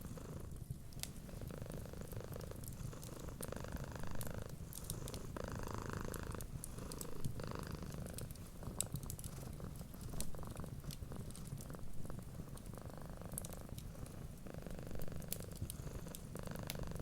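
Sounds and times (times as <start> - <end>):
cat purring: 0.0 - 17.0
wood fire crackling: 4.2 - 5.4, 6.1 - 17.0.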